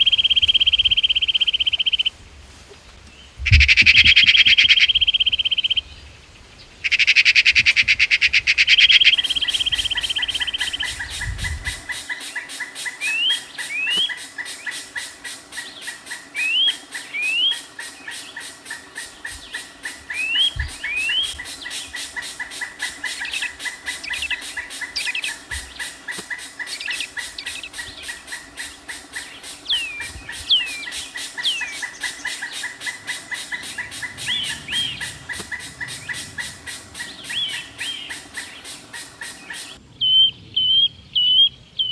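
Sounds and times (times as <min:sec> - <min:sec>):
bird chirps: 0:08.7 - 0:41.9
fast-pulsing background chorus: 0:09.1 - 0:39.8.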